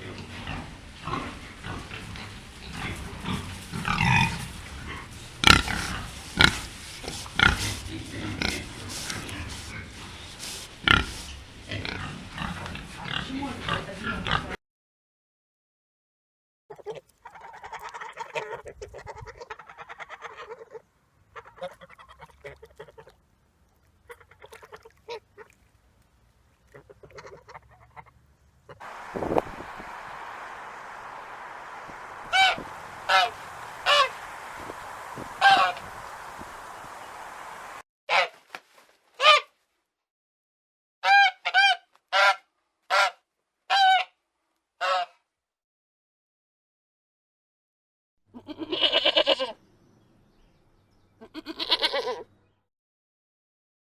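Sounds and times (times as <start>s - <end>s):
ducks quacking: 28.8s - 37.8s
goose honking: 28.8s - 37.8s.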